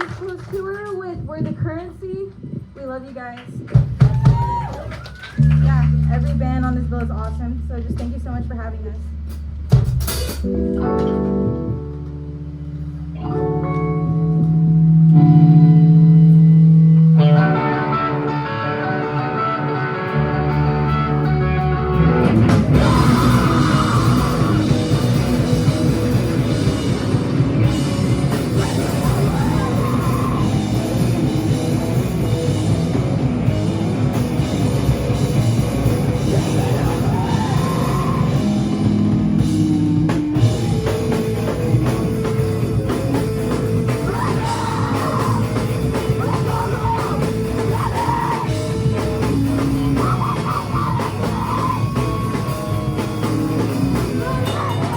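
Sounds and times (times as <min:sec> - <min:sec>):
live rock band playing: 0:03.7 - 0:54.9
electric guitar playing: 0:05.4 - 0:54.9
person singing: 0:22.7 - 0:25.2, 0:28.6 - 0:30.8, 0:36.1 - 0:39.0, 0:39.8 - 0:48.6, 0:54.0 - 0:54.9.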